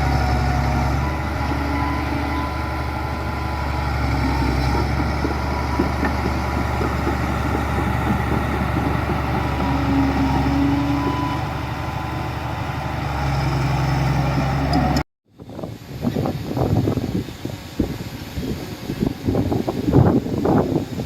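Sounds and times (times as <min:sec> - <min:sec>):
diesel engine running: 0:00.0 - 0:15.0
wind buffeting the microphone: 0:15.3 - 0:21.0.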